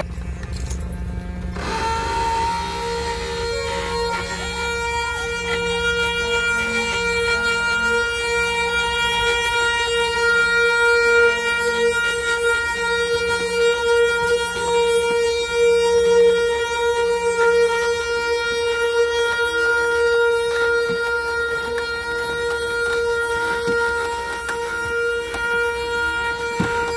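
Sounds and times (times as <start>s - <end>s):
cart axle whining: 0.0s - 11.0s.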